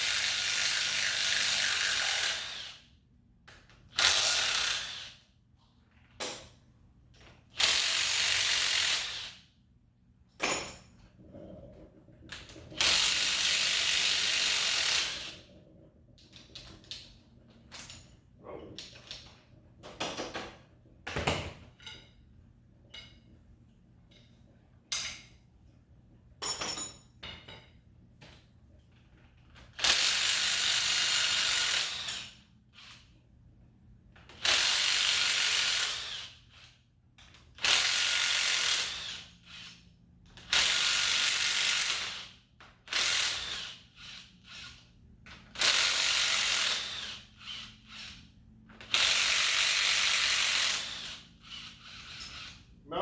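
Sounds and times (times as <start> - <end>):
power ratchet whirring: 4.0 - 5.2, 7.6 - 9.4, 12.7 - 15.5, 29.8 - 33.0, 34.3 - 36.7, 37.6 - 39.8, 40.4 - 52.7
clicks and metal knocks: 18.8 - 22.3, 26.4 - 29.7.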